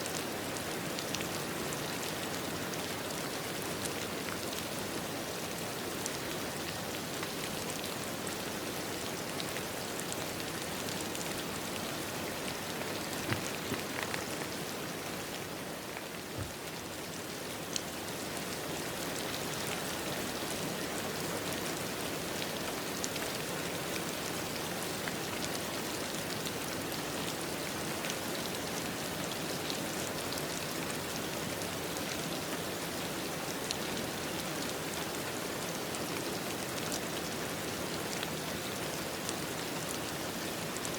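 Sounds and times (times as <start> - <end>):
steady rain hiss: 0.0 - 40.9
raindrops pattering: 8.3 - 32.1.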